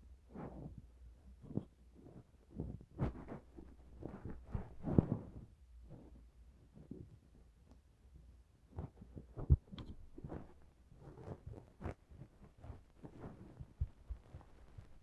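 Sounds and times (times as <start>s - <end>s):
handling taps and scrapes: 8.8s - 15.0s.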